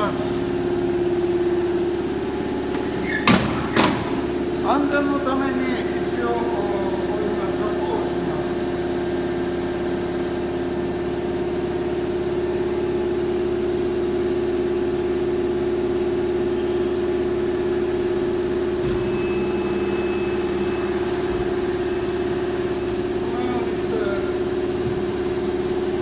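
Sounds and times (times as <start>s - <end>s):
lathe machine hum: 0.0s - 26.0s
thin high whine: 15.8s - 26.0s.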